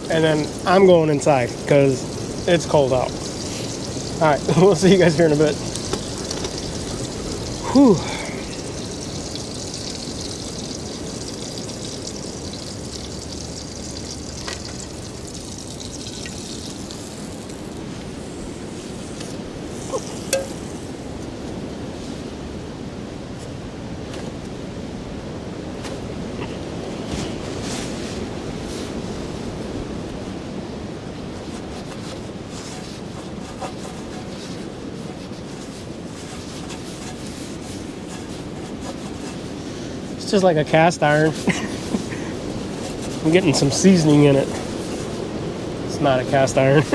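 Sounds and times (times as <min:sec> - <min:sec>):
rushing blizzard wind: 0:17.1 - 0:46.9.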